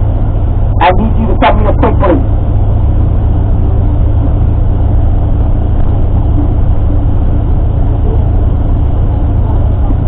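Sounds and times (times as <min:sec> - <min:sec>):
bus engine rumble: 0:00.0 - 0:10.0
road noise: 0:00.0 - 0:10.0.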